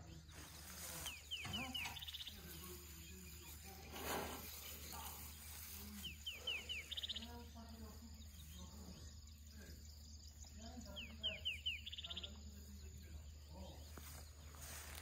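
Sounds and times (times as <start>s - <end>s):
songbird singing whistled trill: 1.0s - 3.6s, 6.0s - 7.4s, 8.2s - 12.9s.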